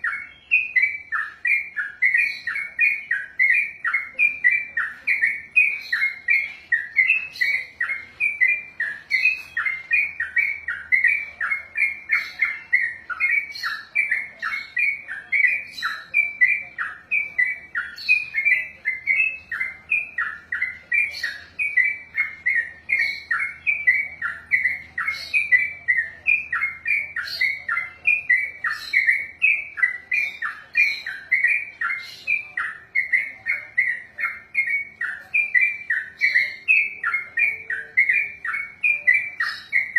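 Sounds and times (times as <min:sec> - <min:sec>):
bulbul singing chattering notes: 0:00.0 - 0:39.9.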